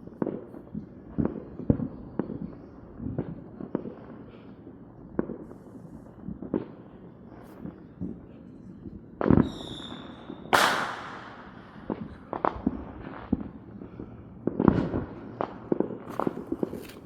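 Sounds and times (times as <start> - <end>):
firework pops and cracks: 0.0 - 4.2, 5.1 - 17.0
loud firework report: 5.2 - 17.0
firework bang: 9.2 - 13.5
firework whistle: 9.4 - 11.6.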